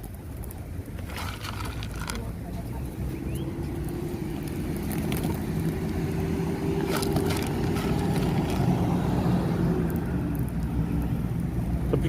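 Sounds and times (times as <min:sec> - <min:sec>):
engine humming: 0:00.4 - 0:12.0.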